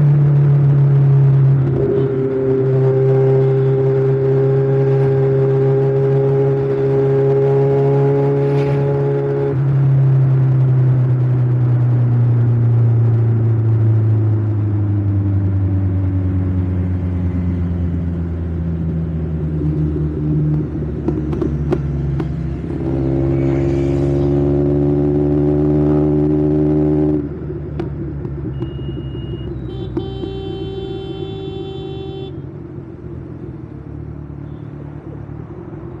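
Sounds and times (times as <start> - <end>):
motorcycle engine running: 16.2 - 24.4.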